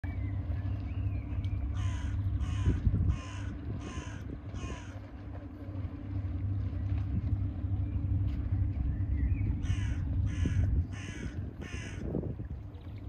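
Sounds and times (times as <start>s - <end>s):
steady low rumble: 0.0s - 13.0s
bird harsh calls: 9.2s - 12.0s.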